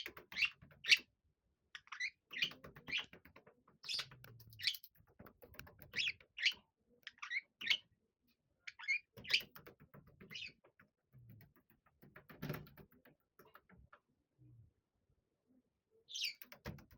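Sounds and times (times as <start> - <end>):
birds rustling and knocking: 0.0 - 1.0, 2.3 - 6.6, 9.2 - 14.0, 16.4 - 16.9.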